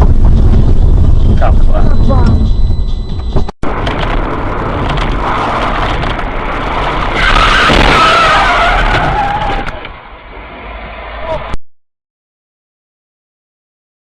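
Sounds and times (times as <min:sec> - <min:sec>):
car tyres squealing: 0:05.1 - 0:11.6.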